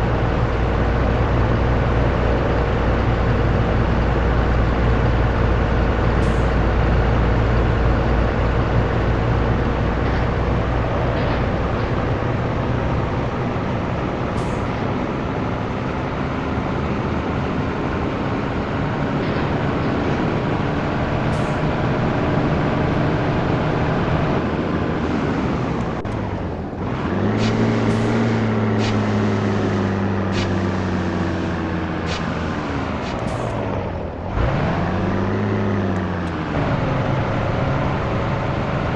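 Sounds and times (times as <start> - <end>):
truck diesel engine revving: 0.0 - 38.9.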